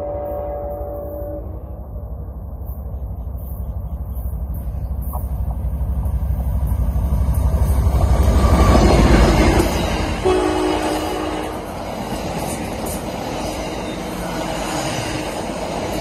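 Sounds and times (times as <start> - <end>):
train horn chord: 0.0 - 2.0, 10.2 - 11.7
diesel locomotive rumble: 0.0 - 16.0.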